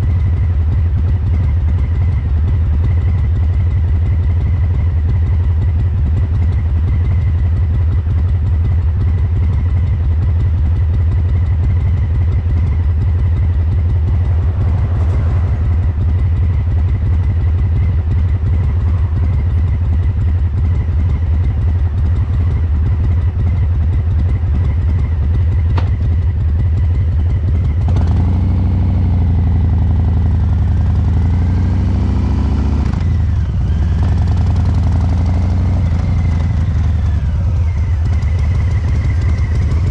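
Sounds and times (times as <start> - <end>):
motorcycle engine idling: 0.0 - 39.9
motorcycle engine revving: 8.7 - 39.9.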